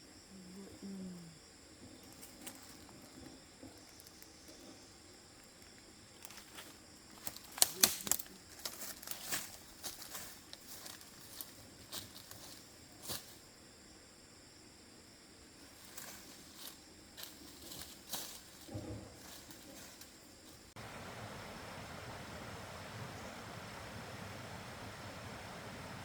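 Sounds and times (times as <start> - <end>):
insects chirring: 0.0 - 26.0
dry plants crackling and snapping: 5.6 - 12.5.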